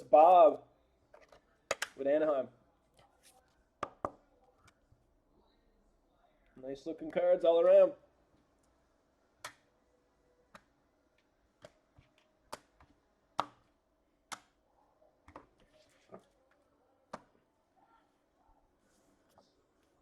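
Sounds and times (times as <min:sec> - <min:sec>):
cards clicking on a table: 0:01.2 - 0:02.0.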